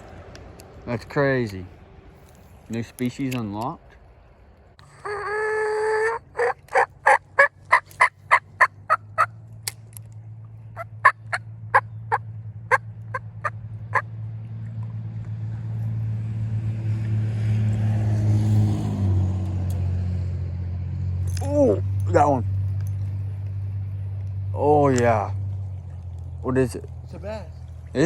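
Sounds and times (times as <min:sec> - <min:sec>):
low engine drone: 0:04.0 - 0:28.0
fowl-like bird calling: 0:04.8 - 0:09.4, 0:10.8 - 0:14.1.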